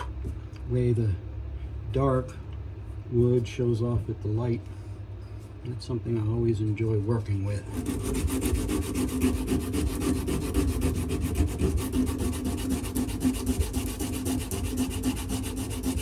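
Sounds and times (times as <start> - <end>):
rotary tool sanding wood: 6.2 - 16.0.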